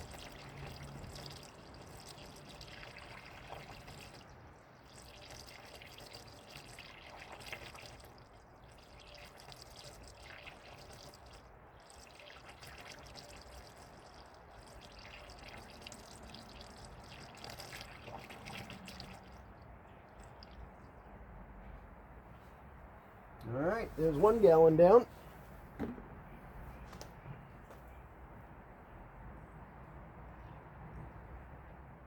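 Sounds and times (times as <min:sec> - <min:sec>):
liquid trickling from a jug: 0:00.0 - 0:22.5, 0:23.7 - 0:25.1.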